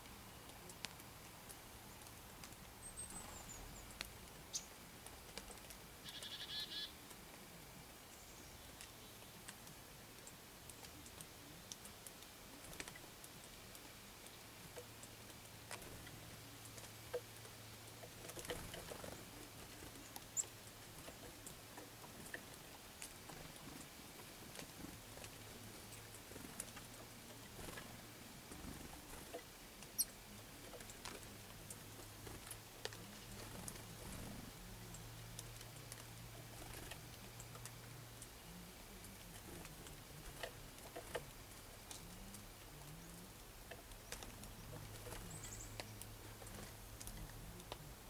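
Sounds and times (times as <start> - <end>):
faint clicks: 0.4 - 3.2, 8.8 - 48.0.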